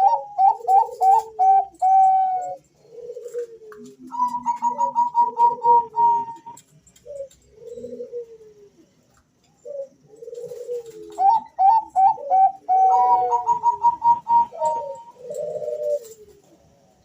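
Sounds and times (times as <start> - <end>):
doves cooing: 0.0 - 17.0.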